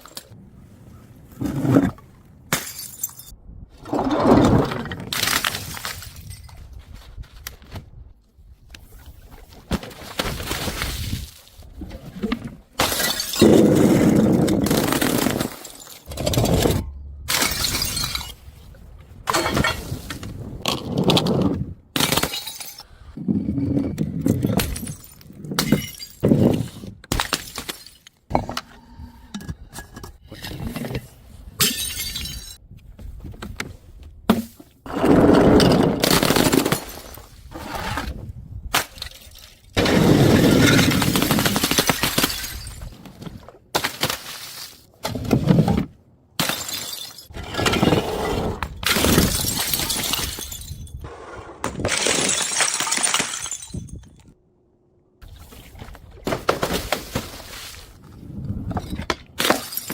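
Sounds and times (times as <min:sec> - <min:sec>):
glass bottles smashing: 0:02.5 - 0:03.3, 0:12.8 - 0:16.6, 0:17.3 - 0:18.4, 0:22.0 - 0:22.9, 0:31.6 - 0:32.6, 0:38.8 - 0:42.9, 0:46.4 - 0:48.0, 0:48.8 - 0:51.0, 0:51.8 - 0:54.2, 0:58.8 - 0:59.9.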